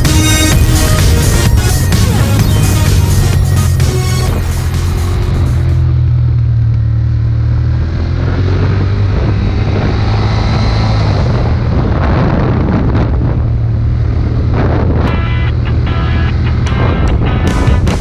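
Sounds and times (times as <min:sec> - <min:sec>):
motorcycle engine running: 0:00.0 - 0:18.0
wind buffeting microphone: 0:08.4 - 0:15.9.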